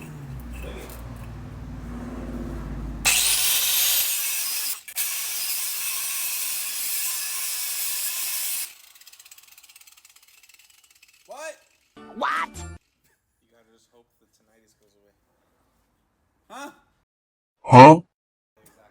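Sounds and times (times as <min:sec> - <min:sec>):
angle grinder cutting metal: 0:00.0 - 0:01.6, 0:02.3 - 0:12.0.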